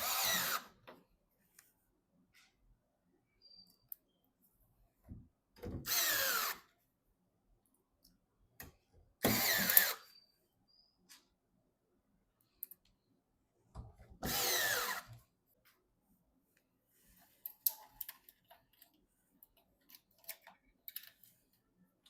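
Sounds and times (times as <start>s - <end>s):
electric screwdriver driving screw: 0.0s - 0.8s, 5.8s - 6.7s, 9.2s - 10.1s, 14.2s - 15.1s
clicks and taps of parts: 17.4s - 21.3s.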